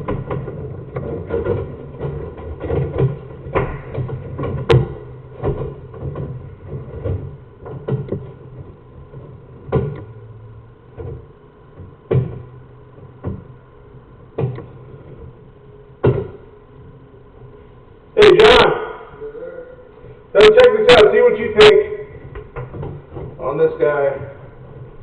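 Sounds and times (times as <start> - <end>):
irregular knocks and bumps: 0.0 - 16.6, 22.1 - 23.5
low steady hum: 0.0 - 25.0.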